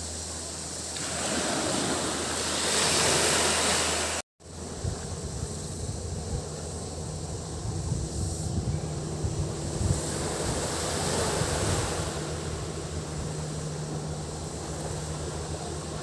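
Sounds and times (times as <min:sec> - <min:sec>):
low engine hum: 0:00.0 - 0:16.0
waves washing onto a beach: 0:00.9 - 0:04.2, 0:09.6 - 0:16.0.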